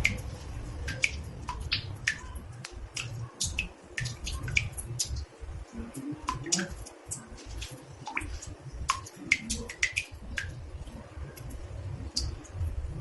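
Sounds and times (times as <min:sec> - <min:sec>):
low rumble: 0:00.0 - 0:03.0
water drops plinking into bathtub: 0:00.0 - 0:05.3, 0:06.2 - 0:10.6, 0:11.4 - 0:12.7.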